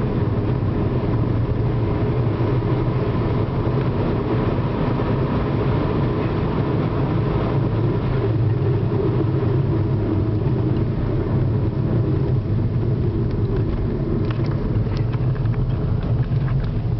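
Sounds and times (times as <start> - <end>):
car engine and road rumble: 0.0 - 16.9.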